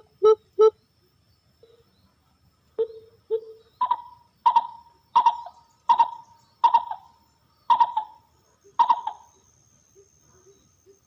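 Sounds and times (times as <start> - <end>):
dove cooing: 2.8 - 7.1, 7.7 - 9.4.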